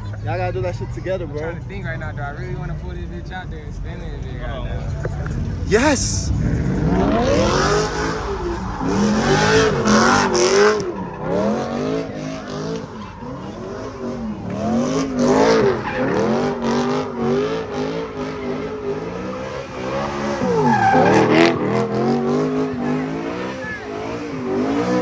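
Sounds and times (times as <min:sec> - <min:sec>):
car engine revving: 0:00.0 - 0:25.0
tyres screeching: 0:07.8 - 0:25.0.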